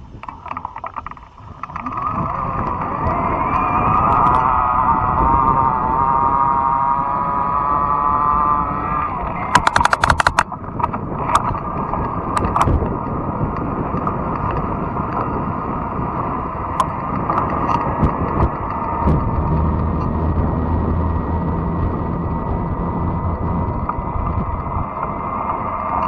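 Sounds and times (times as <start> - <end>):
steady motor whine: 0.0 - 26.0
wind and tyre rumble: 0.0 - 26.0
sharp clicks: 9.2 - 15.3.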